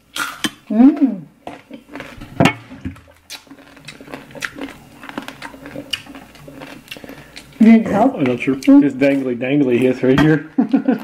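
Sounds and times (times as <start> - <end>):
crunching crispy skin: 1.4 - 2.3, 3.0 - 10.0.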